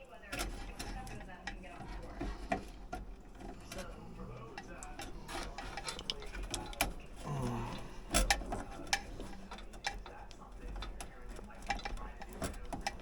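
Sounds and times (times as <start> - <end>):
clicks of metal parts handled: 4.6 - 7.2
person grunting: 7.2 - 8.0.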